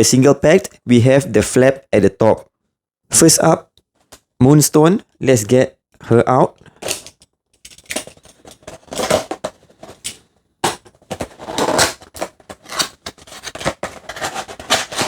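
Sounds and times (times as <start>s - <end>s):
cardboard and paper rustling: 6.7s - 15.0s.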